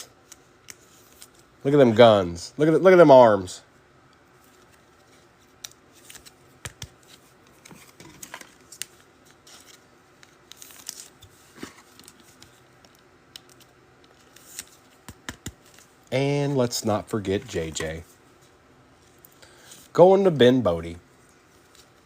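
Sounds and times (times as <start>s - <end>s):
trading cards being shuffled: 4.4s - 16.1s.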